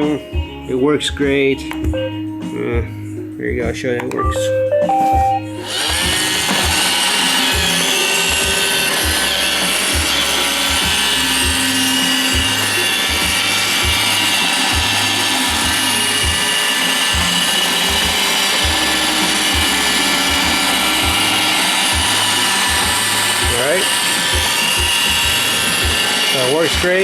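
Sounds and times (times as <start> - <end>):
robot vacuum motor whine: 5.6 - 27.0.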